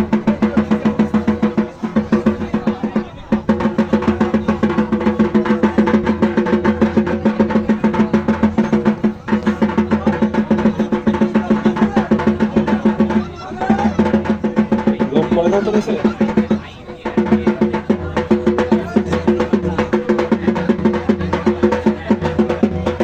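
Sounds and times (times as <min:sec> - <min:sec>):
drums beaten fast: 0:00.0 - 0:23.0.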